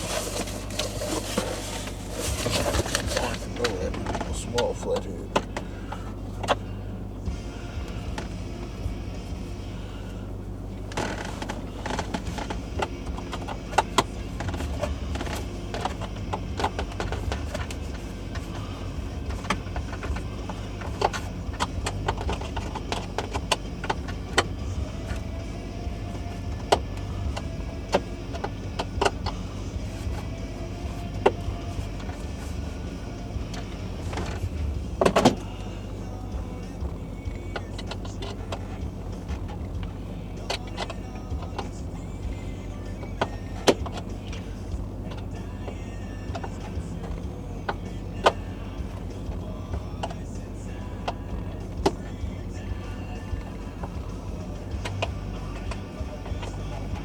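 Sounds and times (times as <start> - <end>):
plastic parts knocking: 0.0 - 5.6
steady low hum: 0.0 - 57.0.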